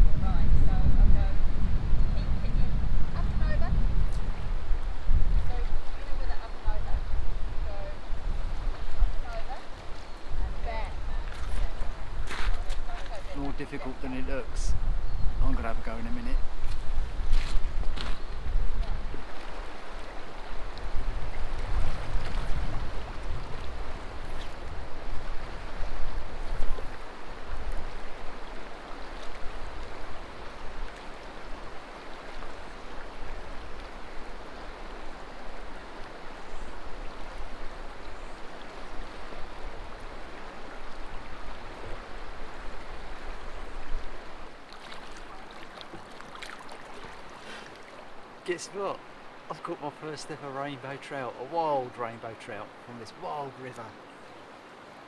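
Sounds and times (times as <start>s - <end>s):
wind rumble on microphone: 0.0s - 46.1s
river water rushing over stones: 15.6s - 55.0s.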